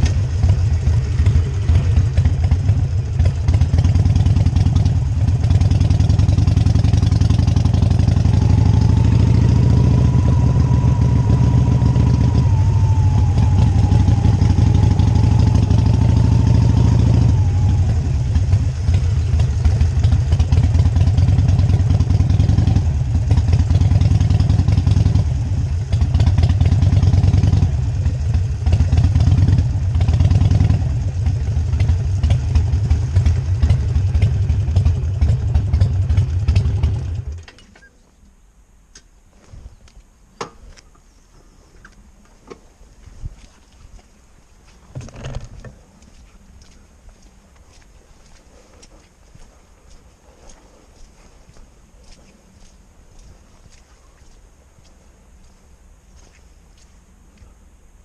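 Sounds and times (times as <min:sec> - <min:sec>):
motorcycle engine running: 0:00.0 - 0:37.5, 0:44.9 - 0:48.4.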